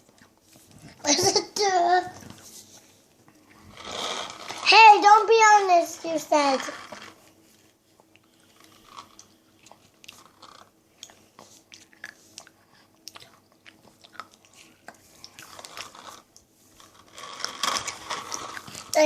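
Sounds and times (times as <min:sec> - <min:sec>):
child chewing food: 0:00.0 - 0:01.1, 0:07.0 - 0:19.0.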